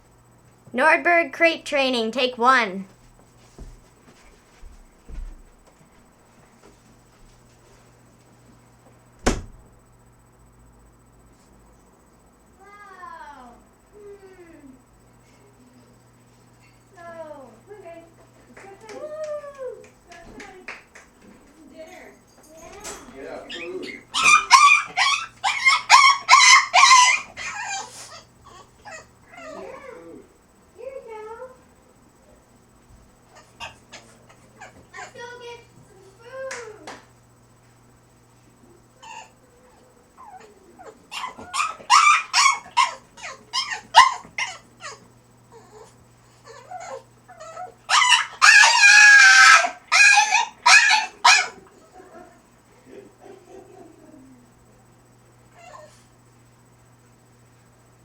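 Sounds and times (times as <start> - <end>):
dog whining howl-like calls: 23.5 - 30.2, 39.0 - 45.9, 46.5 - 51.7.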